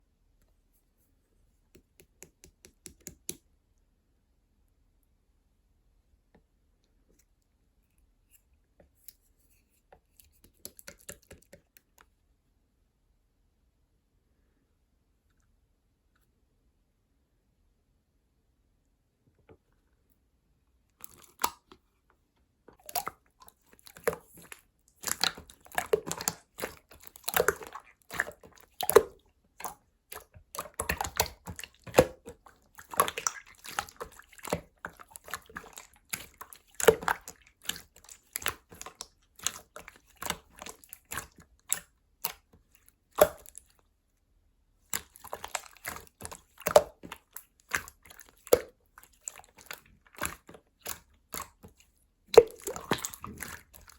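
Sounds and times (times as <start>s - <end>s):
slime squelching by hand: 8.9s - 12.0s, 20.9s - 44.1s, 44.8s - 53.9s.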